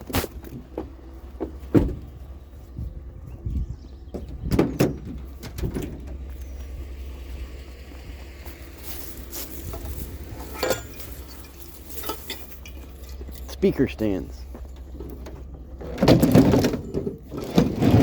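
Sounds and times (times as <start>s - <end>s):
sharp knocks and clunks: 0.0s - 2.2s, 4.1s - 6.4s, 14.4s - 18.0s
car engine idling: 0.4s - 16.1s.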